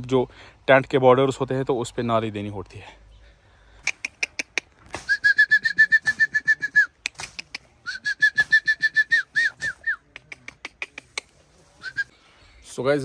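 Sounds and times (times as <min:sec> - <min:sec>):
sharp clicks: 0:03.8 - 0:07.7
bird rapid repeated call: 0:03.8 - 0:08.7.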